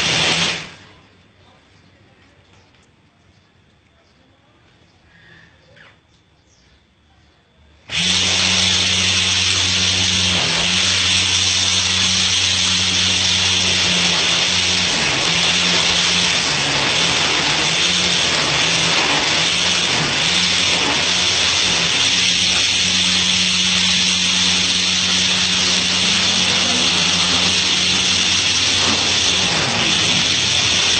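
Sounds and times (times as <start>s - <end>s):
electric motor humming: 0.0s - 0.9s, 7.9s - 30.9s.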